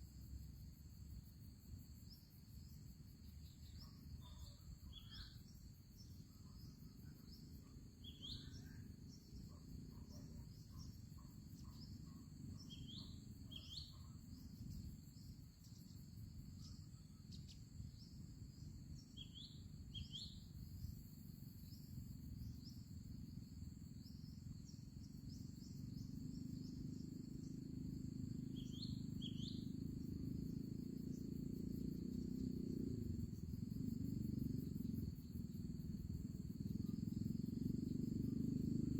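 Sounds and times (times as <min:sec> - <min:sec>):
high insect chorus: 0:00.0 - 0:38.9
small bird chirping: 0:03.4 - 0:22.9, 0:24.0 - 0:32.7.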